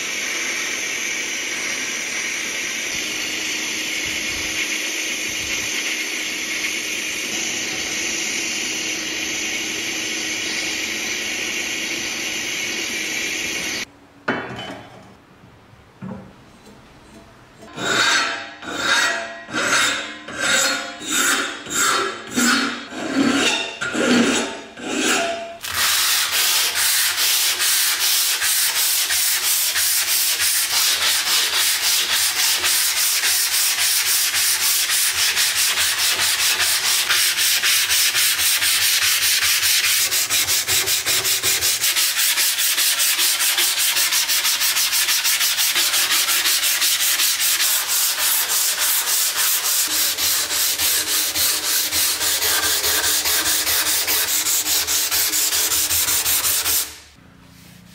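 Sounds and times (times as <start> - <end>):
sanding: 17.8 - 57.0.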